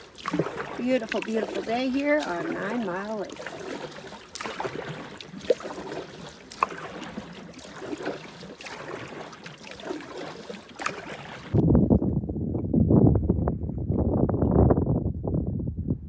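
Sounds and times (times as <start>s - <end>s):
paddle strokes in water: 0.0s - 11.6s
water dripping and splashing: 0.0s - 11.6s.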